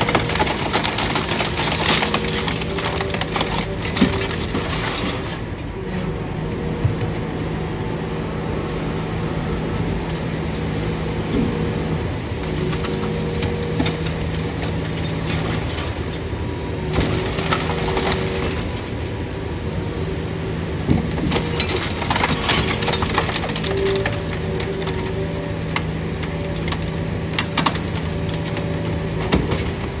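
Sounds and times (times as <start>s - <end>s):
metal clanks and scraping: 0.0s - 7.3s
machinery drone with low hum: 0.0s - 30.0s.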